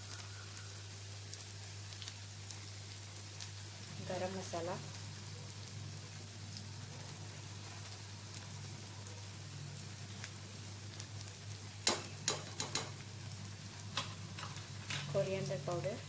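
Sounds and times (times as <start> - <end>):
onions sizzling in a pan: 0.0 - 16.0
spatula clicking against pan: 11.8 - 13.0.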